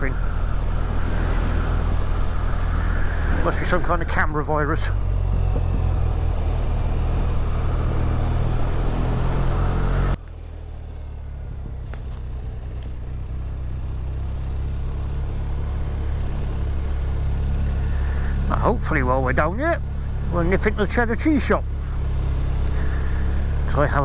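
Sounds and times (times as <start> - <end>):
wind noise: 0.0 - 10.1, 11.4 - 12.7
motorcycle engine: 0.0 - 24.0.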